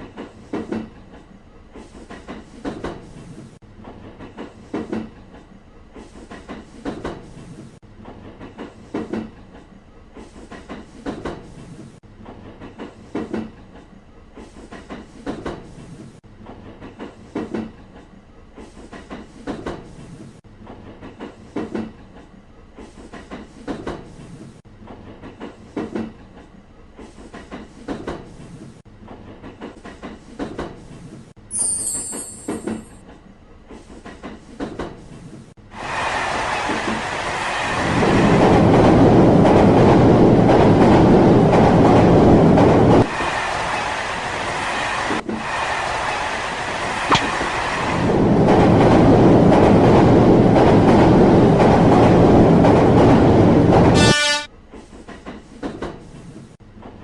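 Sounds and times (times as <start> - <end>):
train wheels clickety-clack: 0.0 - 57.0.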